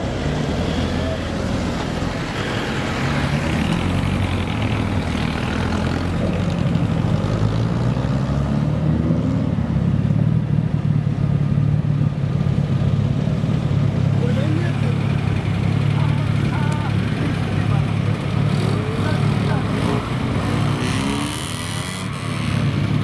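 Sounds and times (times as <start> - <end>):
car engine running: 9.9 - 23.0.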